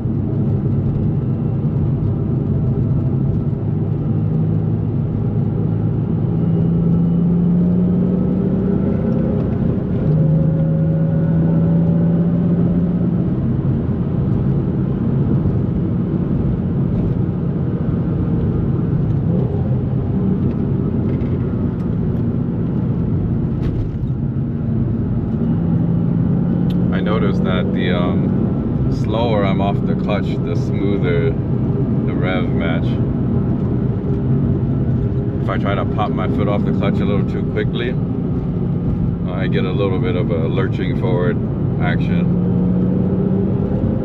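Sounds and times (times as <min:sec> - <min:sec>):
car engine and exhaust: 0:00.0 - 0:44.0.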